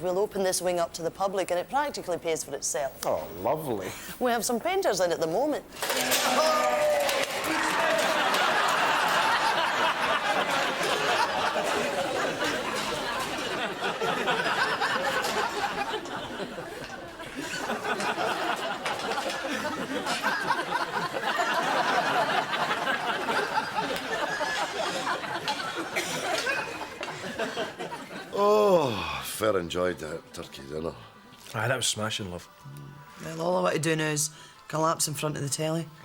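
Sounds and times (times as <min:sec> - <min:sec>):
people laughing: 0:05.8 - 0:29.2.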